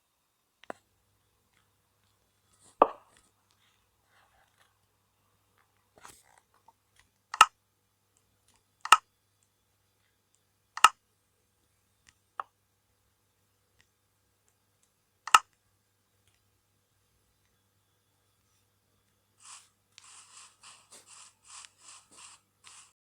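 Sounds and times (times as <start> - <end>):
sharp clicks: 7.3 - 7.5, 8.8 - 9.0, 10.8 - 11.0, 15.3 - 15.6.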